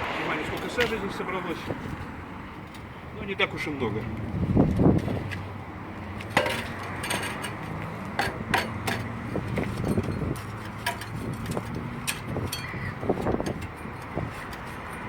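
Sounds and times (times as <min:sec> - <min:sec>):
knocks and metallic clinks of pipe: 0:06.3 - 0:15.0.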